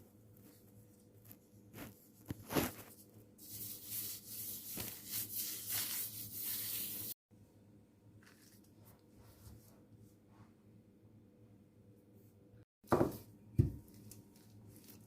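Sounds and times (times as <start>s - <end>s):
rustling and scraping: 0.4s - 7.2s.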